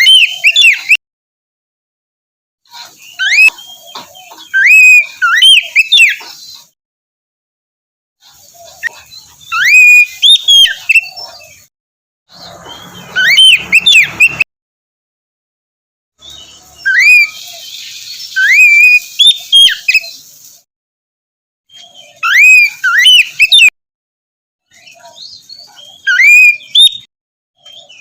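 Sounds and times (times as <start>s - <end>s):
bird singing whistled phrases: 0.0s - 1.0s, 3.0s - 6.2s, 8.8s - 11.7s, 12.4s - 14.4s, 16.2s - 20.2s, 21.7s - 23.7s, 24.7s - 28.0s.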